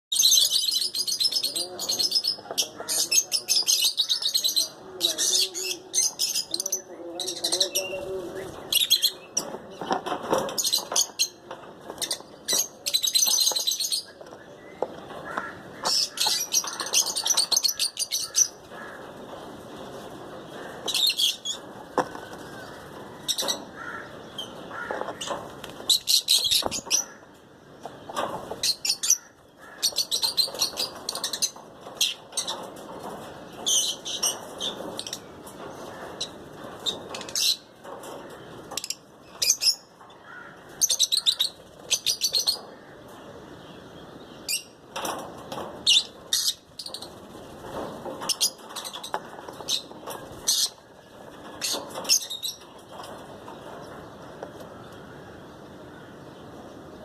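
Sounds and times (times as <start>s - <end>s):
lovebirds chirping: 0.1s - 57.0s.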